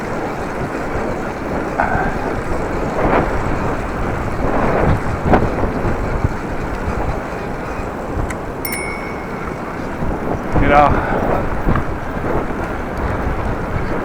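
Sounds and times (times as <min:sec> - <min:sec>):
bicycle bell ringing: 0:08.7 - 0:10.4.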